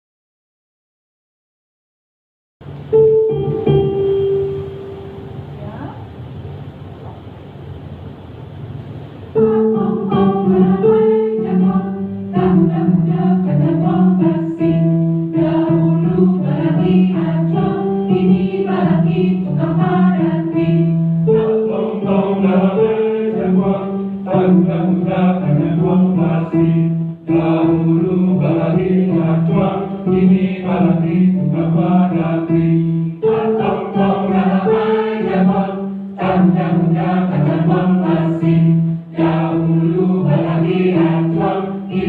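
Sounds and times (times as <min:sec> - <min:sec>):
mixed choir singing: 0:09.4 - 0:42.0.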